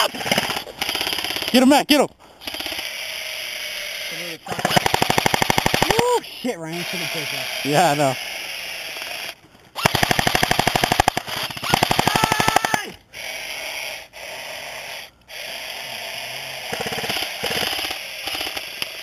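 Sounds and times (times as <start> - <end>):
airsoft rifle bursts: 4.4 - 6.0, 9.0 - 13.0.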